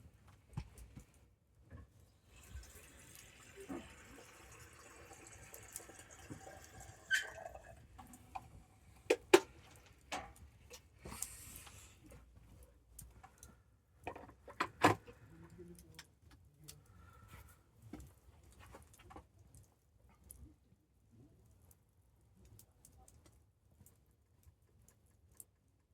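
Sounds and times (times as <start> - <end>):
soft hiss of burning: 2.0 - 13.7.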